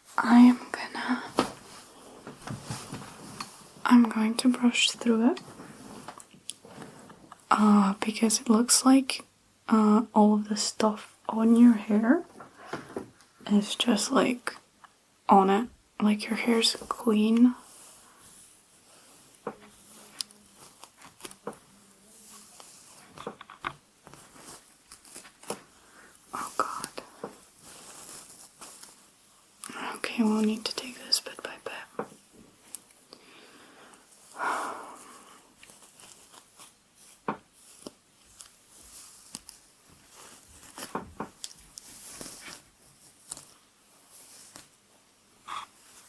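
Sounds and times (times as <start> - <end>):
faint hiss: 0.0 - 46.0
hair crackling and snapping: 19.3 - 21.6, 22.2 - 25.7, 35.0 - 44.8
hairbrush swishing through hair: 22.0 - 23.1.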